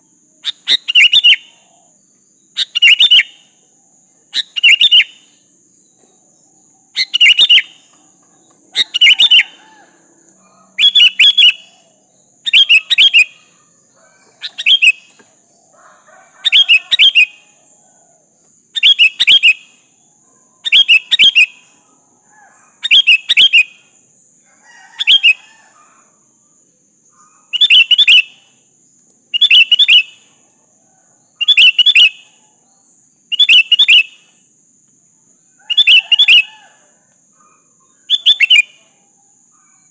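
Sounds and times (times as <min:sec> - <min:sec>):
bulbul calling loudly: 0:00.4 - 0:03.6, 0:04.3 - 0:05.4, 0:06.9 - 0:17.7, 0:18.8 - 0:19.9, 0:20.6 - 0:24.0, 0:24.9 - 0:26.2, 0:27.1 - 0:28.6, 0:29.3 - 0:30.3, 0:31.4 - 0:32.4, 0:33.3 - 0:34.3, 0:35.6 - 0:38.9.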